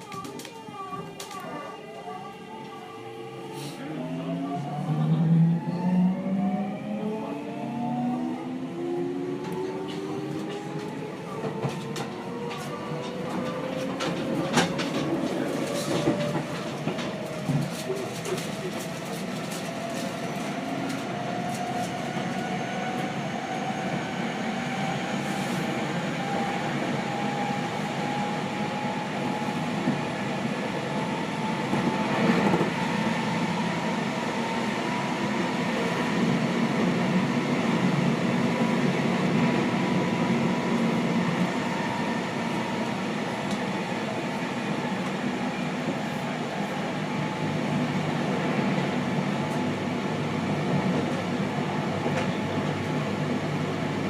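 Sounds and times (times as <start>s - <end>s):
train clatter: 9.9s - 20.2s.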